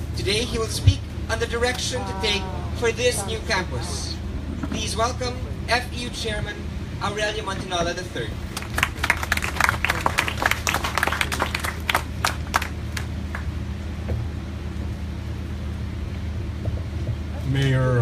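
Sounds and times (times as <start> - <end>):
steady low hum: 0.0 - 18.0
audience applauding: 8.5 - 13.5.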